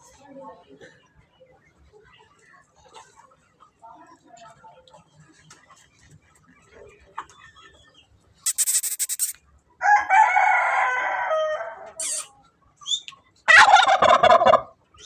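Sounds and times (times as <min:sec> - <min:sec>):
fowl rapid clicks: 0:08.4 - 0:09.4
fowl rapid rattling call: 0:08.4 - 0:09.4.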